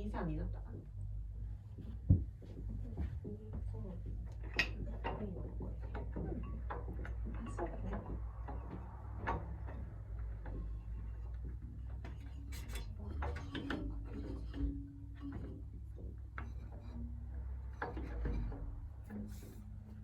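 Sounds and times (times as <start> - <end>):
wood knocking on wood: 1.7 - 20.0.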